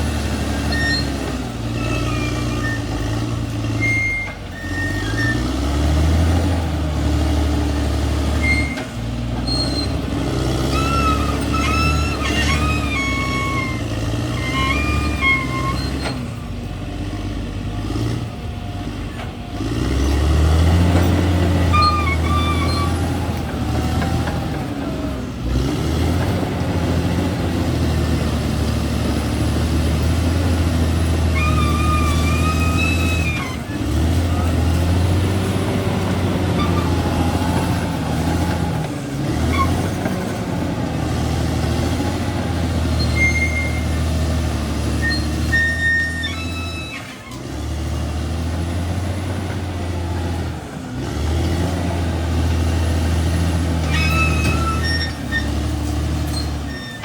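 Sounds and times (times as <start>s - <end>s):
bulldozer diesel engine: 0.0s - 57.0s
short high-pitched squeals: 0.5s - 5.6s, 8.4s - 16.4s, 21.5s - 23.2s, 31.2s - 34.4s, 42.8s - 44.2s, 44.8s - 47.5s, 53.8s - 57.0s.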